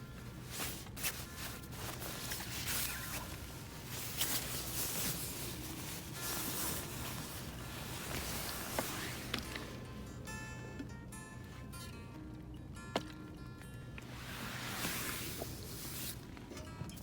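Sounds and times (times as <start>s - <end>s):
rustling and scuffing: 0.1s - 9.9s.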